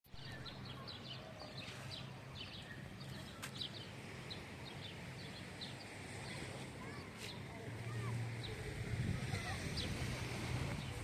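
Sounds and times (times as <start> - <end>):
small birds chirping: 0.1 - 11.0.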